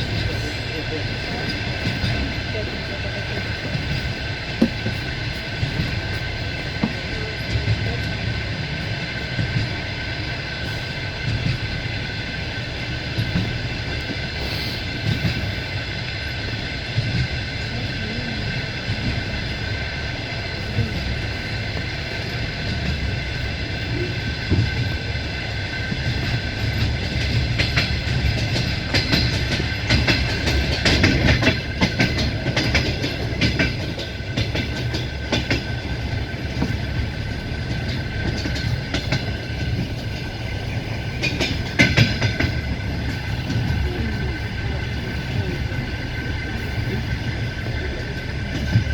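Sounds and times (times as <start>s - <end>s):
train rumble: 0.0s - 48.9s
wheels clattering over rail joints: 20.8s - 48.9s.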